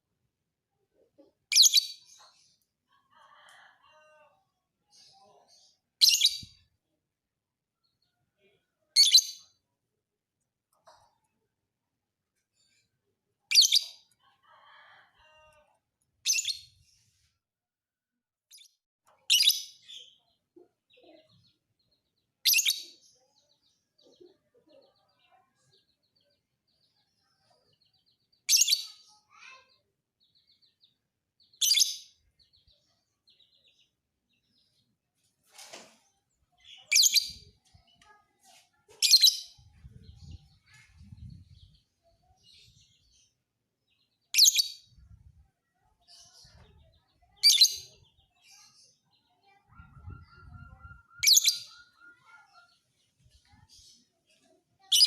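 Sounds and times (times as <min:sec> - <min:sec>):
lovebird chirping: 0:49.5 - 0:52.7.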